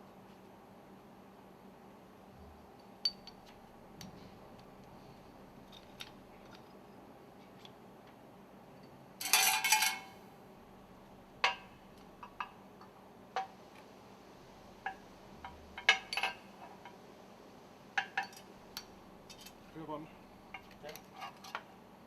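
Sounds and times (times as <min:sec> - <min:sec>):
metal rings clinking: 0:09.2 - 0:10.1.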